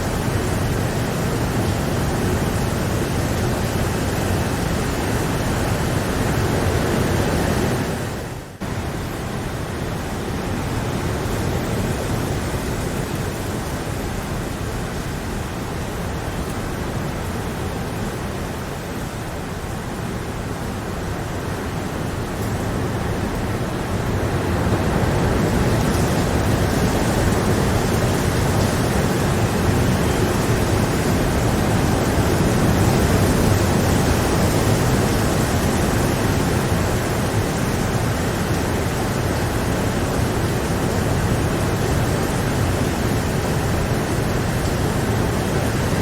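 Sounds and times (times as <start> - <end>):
steady dense rain: 0.0 - 46.0.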